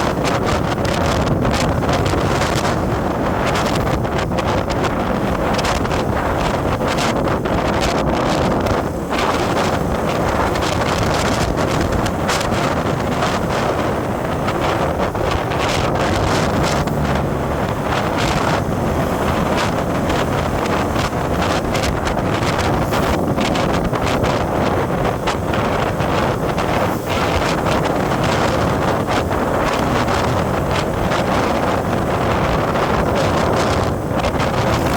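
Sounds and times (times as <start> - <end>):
vehicle road and engine noise: 0.0 - 34.9
wind buffeting microphone: 0.0 - 34.9.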